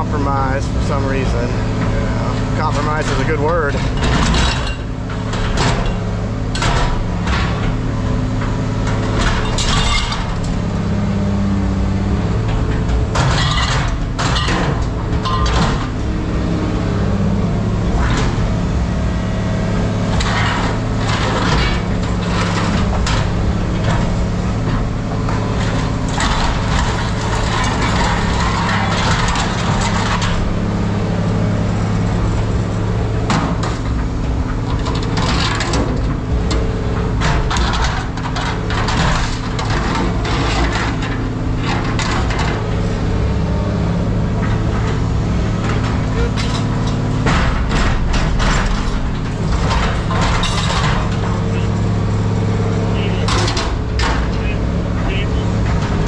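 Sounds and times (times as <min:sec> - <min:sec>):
scrap metal clattering: 0:08.4 - 0:10.5, 0:12.2 - 0:16.0, 0:20.0 - 0:30.6, 0:36.9 - 0:42.7, 0:43.8 - 0:56.0.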